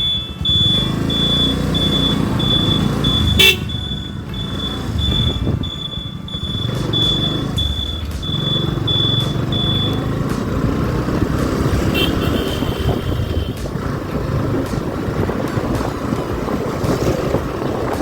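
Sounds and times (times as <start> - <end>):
short high beeps: 0.0 - 10.1
motorcycle engine running: 0.0 - 18.0
wind noise on microphone: 0.2 - 18.0.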